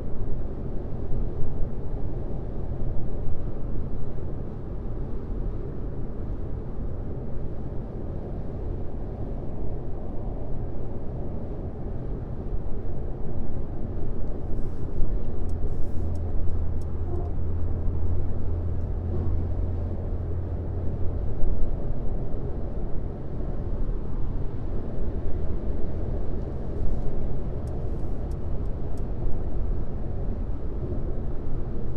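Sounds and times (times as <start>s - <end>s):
car road and tyre noise: 0.0s - 31.9s
deep low hum: 14.2s - 22.0s.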